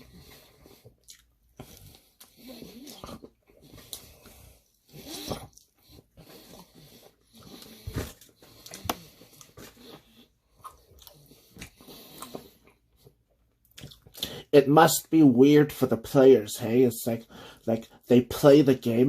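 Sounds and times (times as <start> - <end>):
person crunching and chewing: 0.0 - 4.3, 5.3 - 12.7, 13.7 - 14.4.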